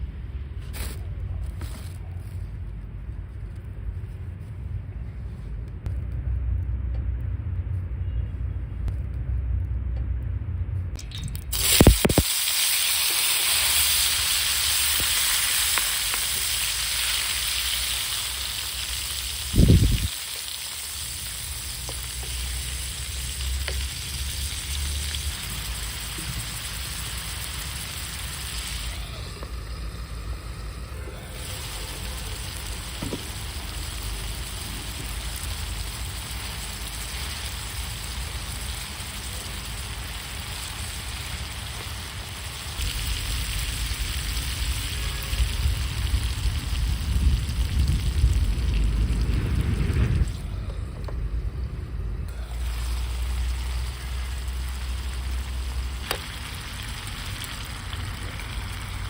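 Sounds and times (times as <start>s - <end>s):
low rumble: 0.0s - 12.2s, 14.1s - 41.3s, 42.6s - 59.0s
food sizzling in a pan: 11.5s - 48.7s, 52.4s - 59.0s.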